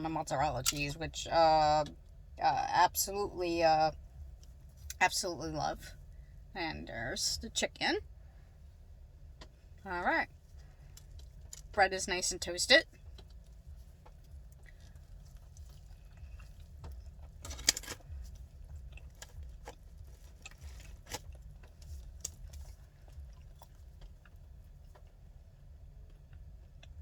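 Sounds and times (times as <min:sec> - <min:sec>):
low hum: 0:00.0 - 0:27.0
chewing crunches and mouth clicks: 0:10.4 - 0:11.8, 0:13.0 - 0:27.0
loud crackling crunch: 0:13.1 - 0:25.1.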